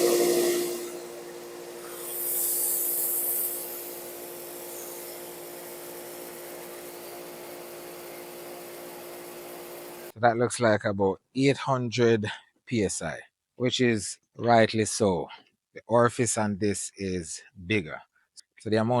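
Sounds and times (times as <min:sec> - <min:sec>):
pressure washer humming: 0:00.0 - 0:10.1
hiss of spray: 0:01.6 - 0:10.1.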